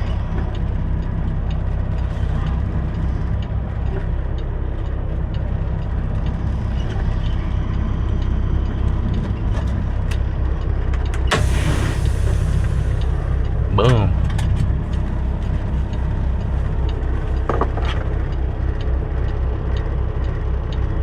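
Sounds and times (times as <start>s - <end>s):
truck diesel engine rumbling: 0.0s - 21.0s
air brake hiss: 11.3s - 13.3s.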